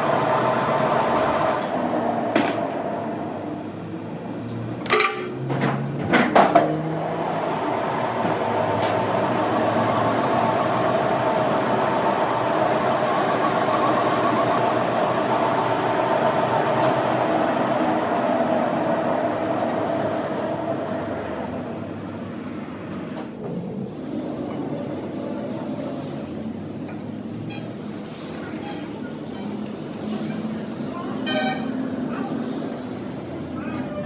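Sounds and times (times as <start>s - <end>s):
machine running: 7.3s - 21.7s.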